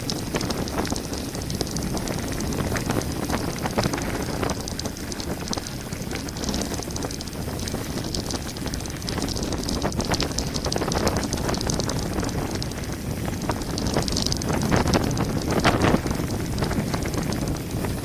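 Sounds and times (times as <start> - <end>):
bike clicks and rattles: 0.0 - 18.0
tyres on loose gravel: 0.0 - 18.0.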